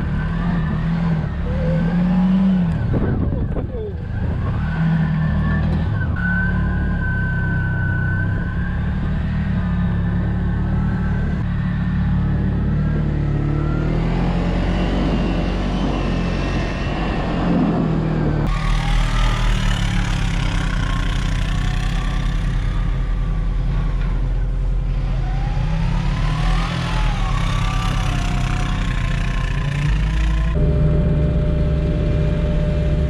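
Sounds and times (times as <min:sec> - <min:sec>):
skid loader engine running: 0:08.8 - 0:33.0.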